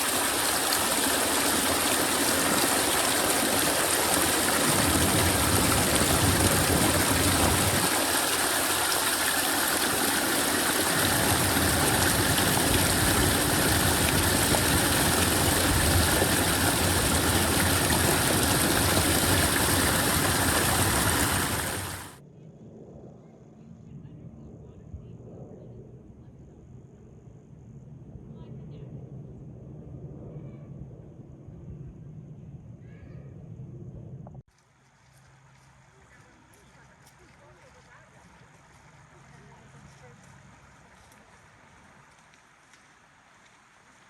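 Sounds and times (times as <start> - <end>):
running water rushing: 0.0 - 22.2
low rumble: 11.0 - 32.8.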